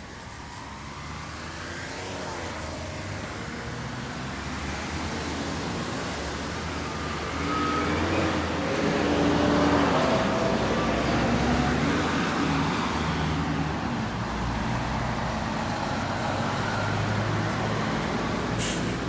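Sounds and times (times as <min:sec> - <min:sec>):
vehicle engine approaching: 0:00.0 - 0:19.0.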